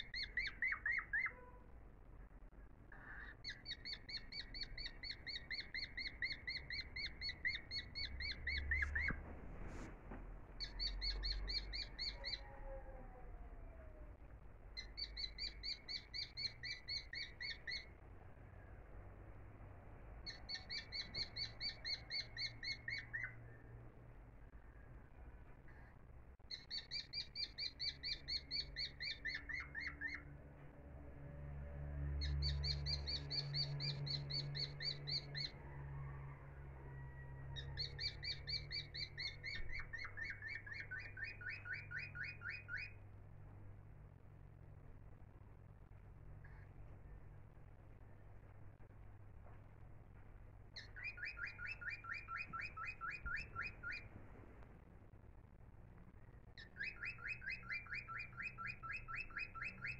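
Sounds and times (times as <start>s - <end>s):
bird trilling: 0.0s - 1.6s, 2.9s - 9.2s, 10.6s - 14.0s, 14.8s - 17.9s, 20.3s - 23.4s, 26.5s - 30.3s, 32.0s - 43.0s, 50.8s - 54.1s, 56.6s - 59.9s
faint low hum: 0.0s - 59.9s.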